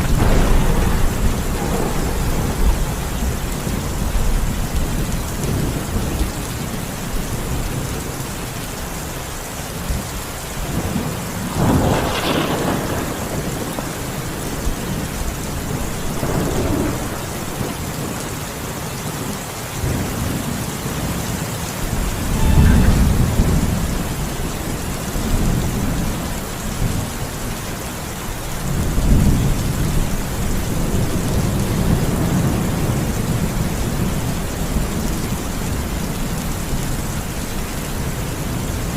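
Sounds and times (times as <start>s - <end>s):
thunder rumbling: 0.0s - 8.2s, 9.8s - 18.4s, 19.8s - 27.3s
steady rain: 0.0s - 38.9s.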